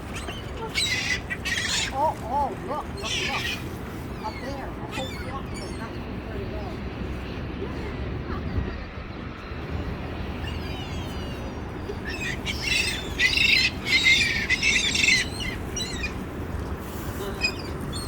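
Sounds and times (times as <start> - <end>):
gulls calling: 0.0 - 6.6, 8.8 - 16.5.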